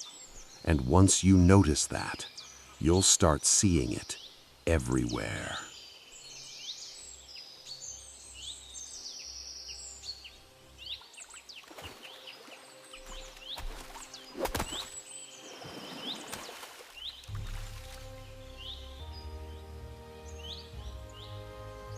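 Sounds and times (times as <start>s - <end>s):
small birds chirping: 0.0s - 21.9s
faint low steady drone: 17.3s - 21.9s.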